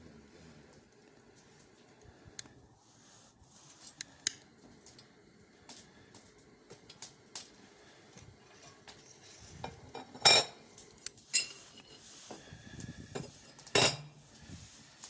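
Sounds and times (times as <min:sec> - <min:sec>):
metal clanks and clinks: 0:09.6 - 0:10.6, 0:11.3 - 0:12.0, 0:13.2 - 0:14.1.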